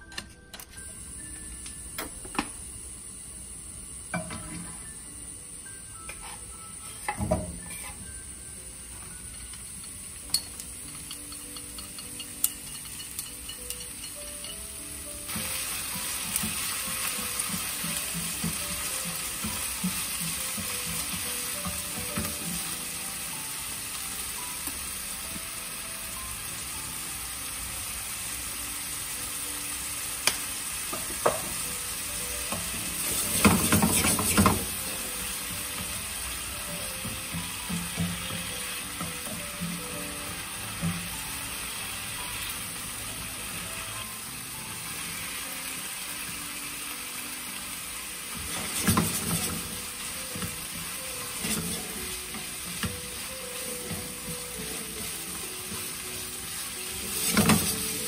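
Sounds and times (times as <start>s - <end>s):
meat sizzling in a frying pan: 1.0s - 58.0s
wooden utensils tapping and scraping pan: 32.5s - 34.8s, 48.4s - 49.8s, 51.4s - 53.0s, 56.9s - 58.0s.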